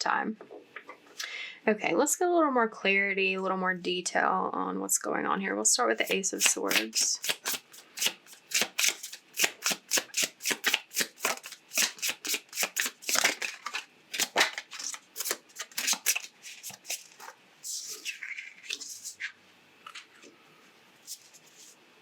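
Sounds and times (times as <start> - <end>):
cards being shuffled: 6.0 - 19.4, 21.0 - 21.8.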